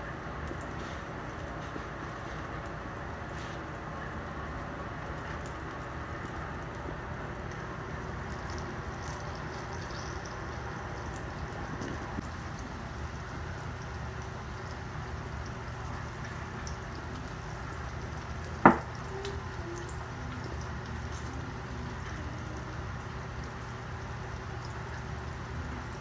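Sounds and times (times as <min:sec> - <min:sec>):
food frying in oil: 0:00.0 - 0:26.0.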